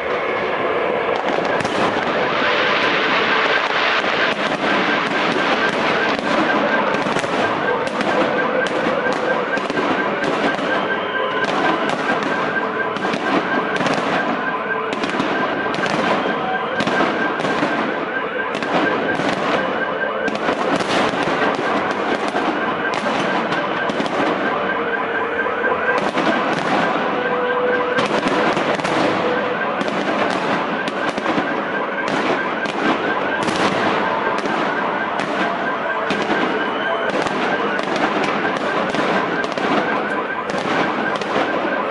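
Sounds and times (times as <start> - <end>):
fireworks bangs and crackles: 0.0 - 41.9.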